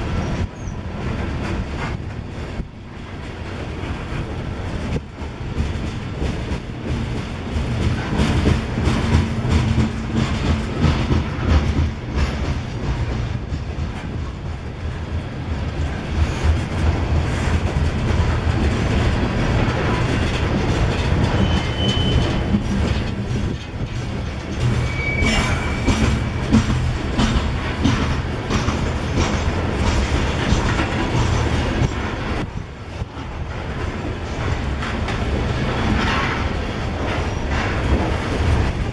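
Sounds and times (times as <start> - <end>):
train rumble: 0.0 - 38.9
train wheels clacking over rail joints: 0.0 - 38.9
high wheel squeals: 21.2 - 22.7, 24.6 - 26.7.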